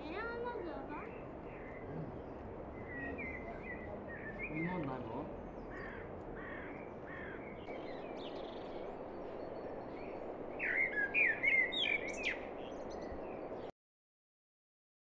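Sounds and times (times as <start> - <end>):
birds chirping and whistling: 7.4 - 13.6.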